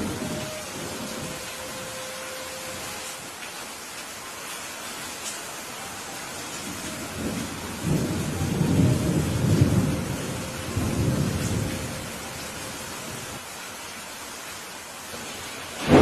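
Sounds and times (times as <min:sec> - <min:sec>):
thunder rumbling: 0:00.0 - 0:03.2, 0:06.4 - 0:13.4, 0:15.8 - 0:16.0
steady rain falling: 0:00.0 - 0:16.0.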